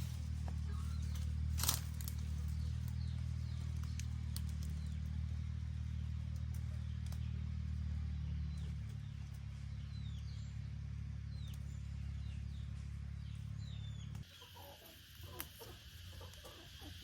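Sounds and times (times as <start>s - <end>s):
low engine-like hum: 0.0s - 17.0s.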